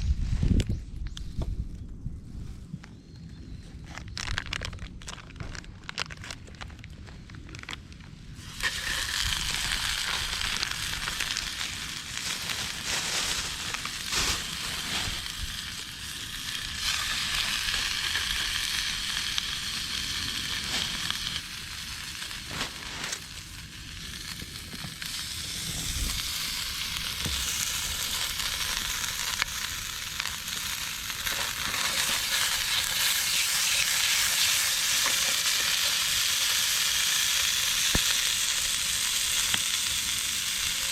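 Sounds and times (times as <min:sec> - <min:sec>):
food sizzling in a pan: 0:08.4 - 0:40.9
fat popping: 0:37.8 - 0:38.6.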